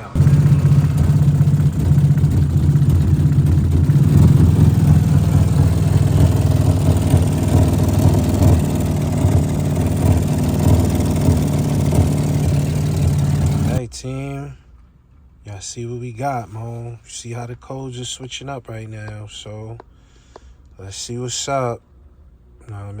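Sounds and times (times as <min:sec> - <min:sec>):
car engine idling rough: 0:00.0 - 0:13.8.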